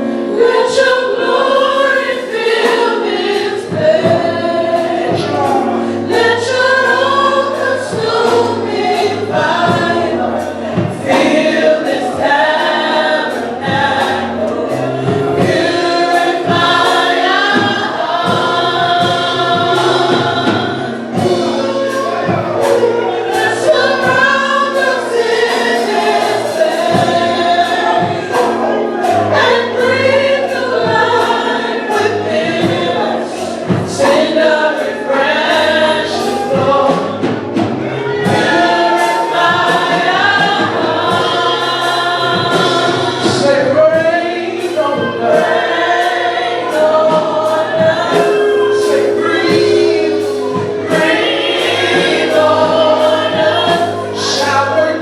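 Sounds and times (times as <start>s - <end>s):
choir singing: 0.0s - 55.0s
bass line: 3.1s - 55.0s
drum beat: 13.6s - 34.5s, 35.4s - 44.2s.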